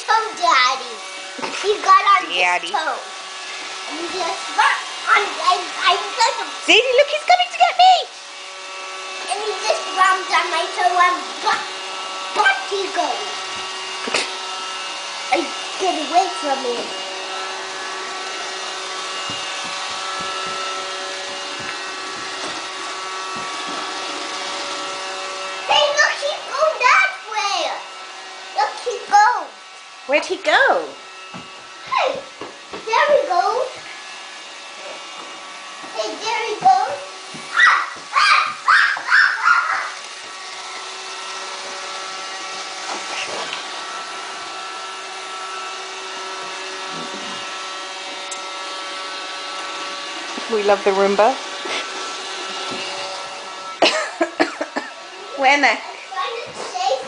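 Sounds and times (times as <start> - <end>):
robot vacuum whirring: 0.0 - 57.0
steady whining tones: 0.0 - 57.0
person speaking: 1.6 - 3.0.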